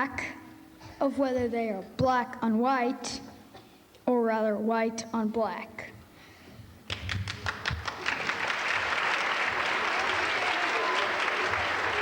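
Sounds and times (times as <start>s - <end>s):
audience clapping: 6.9s - 12.0s.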